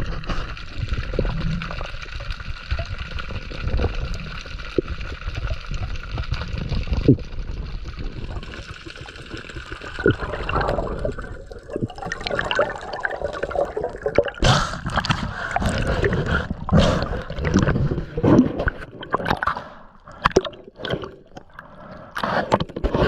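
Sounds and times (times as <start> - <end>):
water gurgling and bubbling: 0.0 - 23.0.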